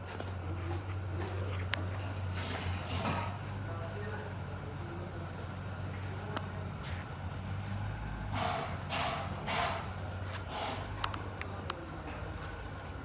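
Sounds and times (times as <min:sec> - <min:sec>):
motorcycle engine idling: 0:03.3 - 0:07.8
short noisy bursts: 0:08.3 - 0:11.1.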